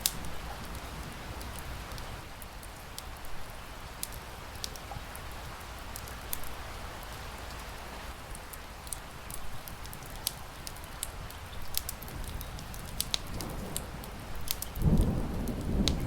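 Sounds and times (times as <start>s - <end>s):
fireplace fire crackling: 0.0s - 16.0s
steady rain falling: 0.0s - 16.0s.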